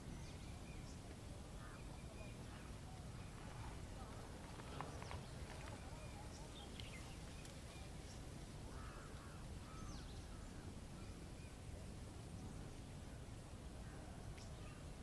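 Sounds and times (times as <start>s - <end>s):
bird calls: 0.0s - 11.6s.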